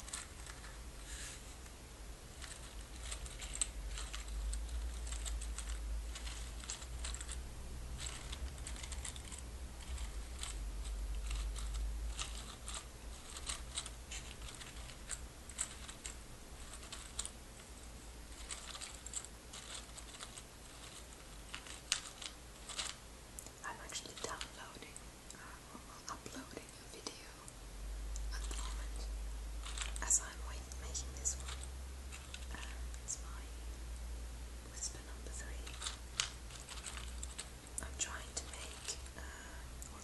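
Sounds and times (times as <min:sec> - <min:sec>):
small hard objects clicking and rattling: 0:00.0 - 0:00.8, 0:02.3 - 0:24.6, 0:29.6 - 0:30.2, 0:31.2 - 0:32.8, 0:35.6 - 0:39.2.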